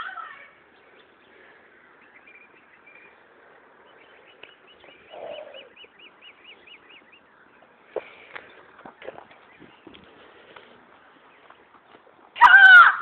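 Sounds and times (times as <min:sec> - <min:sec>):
bird chirping: 0:00.4 - 0:12.0
low animal call: 0:04.8 - 0:05.9.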